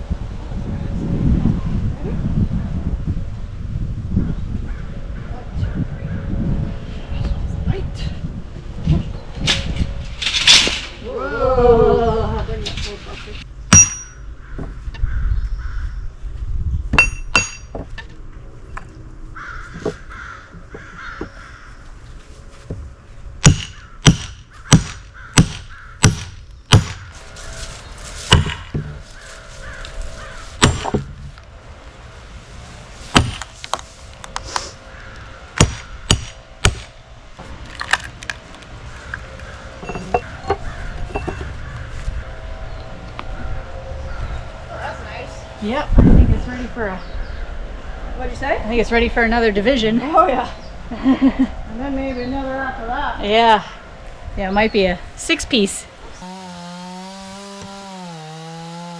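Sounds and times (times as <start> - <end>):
sledgehammer striking steel wedge: 13.7 - 14.2, 16.9 - 17.8, 23.4 - 27.1, 28.3 - 29.0, 30.6 - 31.1, 33.1 - 33.5, 35.6 - 36.9.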